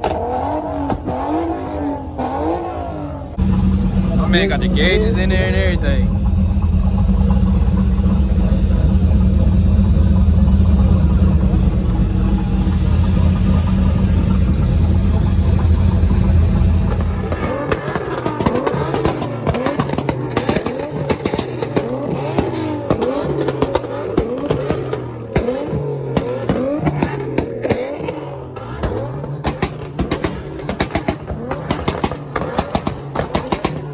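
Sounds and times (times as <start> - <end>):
car engine deep rumble: 0.0 - 33.9
swooping pitches with sharp ticks: 3.4 - 18.1.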